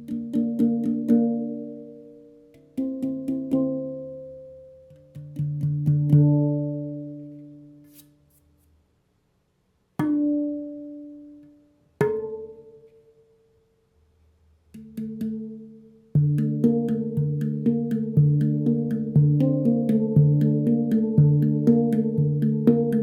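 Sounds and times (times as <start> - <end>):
handpan notes ringing: 0.0 - 7.8, 10.0 - 13.3, 14.8 - 23.0.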